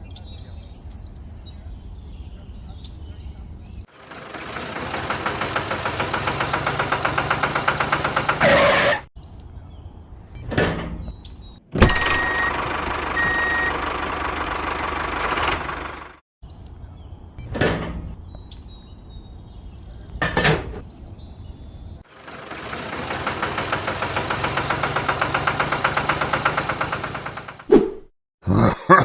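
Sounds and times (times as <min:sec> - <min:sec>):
pulsing vehicle engine: 0:03.9 - 0:09.1, 0:11.8 - 0:16.2, 0:22.1 - 0:27.7.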